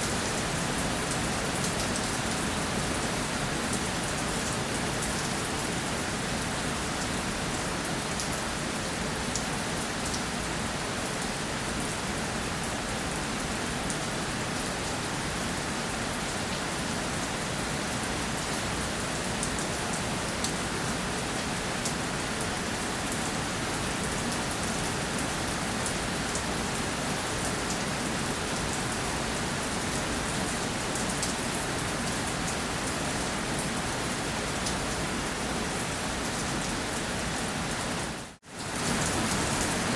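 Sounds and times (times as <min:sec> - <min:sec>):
rain pattering on a surface: 0:00.0 - 0:39.9.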